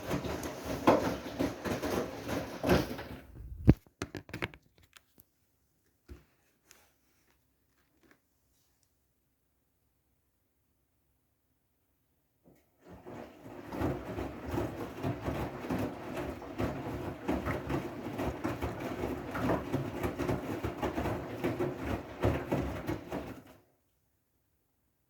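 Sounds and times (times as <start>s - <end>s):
water and laundry sloshing: 0.0s - 3.5s, 12.5s - 23.7s
washing machine drum turning: 12.9s - 23.5s.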